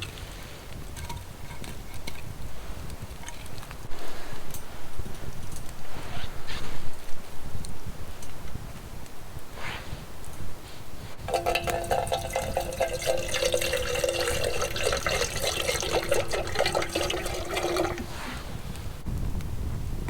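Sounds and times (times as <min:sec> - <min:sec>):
water pouring into container: 0:11.3 - 0:18.5.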